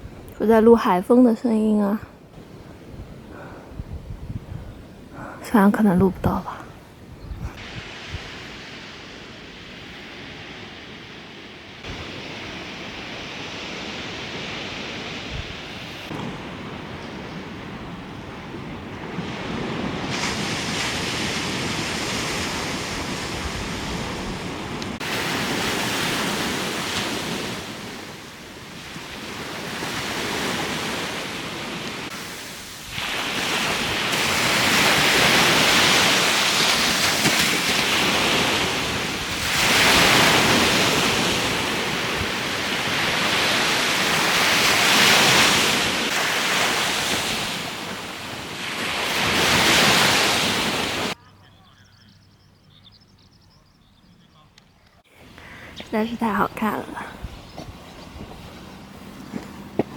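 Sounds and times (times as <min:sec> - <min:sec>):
wind blowing: 0:00.0 - 0:51.2, 0:55.0 - 0:59.9
waves washing in: 0:04.9 - 0:51.2.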